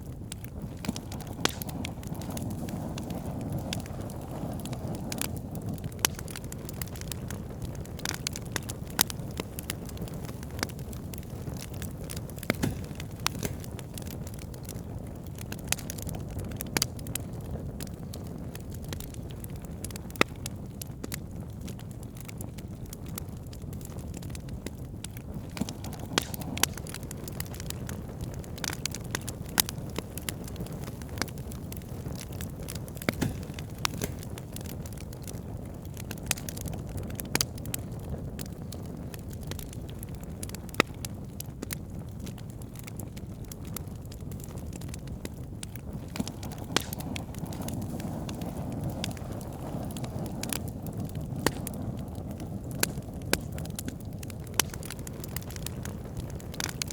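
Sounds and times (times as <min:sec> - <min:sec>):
burning wood crackling: 0:00.0 - 0:56.9
fire rushing: 0:00.0 - 0:56.9.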